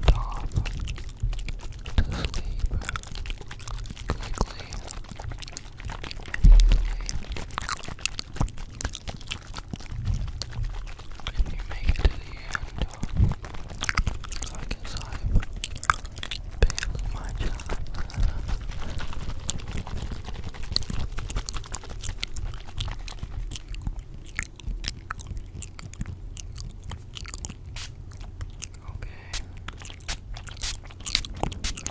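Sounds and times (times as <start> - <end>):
close crackles and clicks: 0.0 - 31.9
low thump: 6.4 - 7.3.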